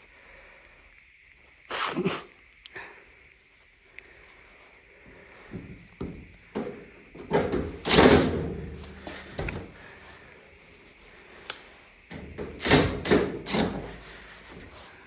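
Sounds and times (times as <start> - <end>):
metal parts clunking and rattling: 5.6 - 10.0, 12.1 - 14.7.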